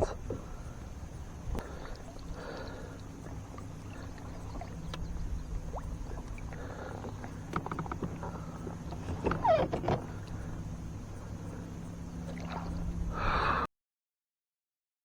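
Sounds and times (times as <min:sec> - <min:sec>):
low steady hum: 0:00.0 - 0:13.7
water gurgling against kayak: 0:01.4 - 0:10.7, 0:12.2 - 0:13.4.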